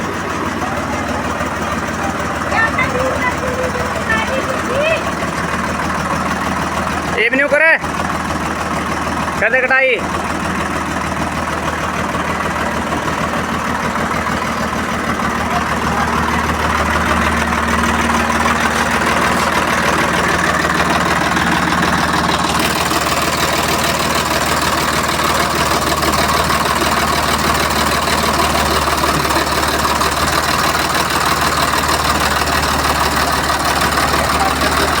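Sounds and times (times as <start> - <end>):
diesel tractor engine running: 0.0 - 35.0.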